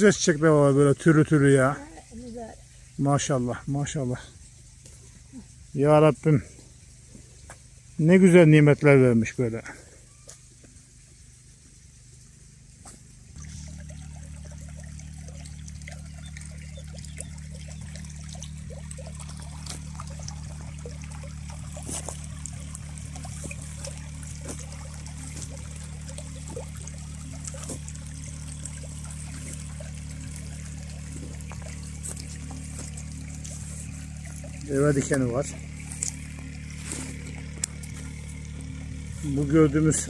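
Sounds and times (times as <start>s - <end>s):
stream trickling and splashing: 0.0s - 40.0s
steady low drone: 9.4s - 40.0s.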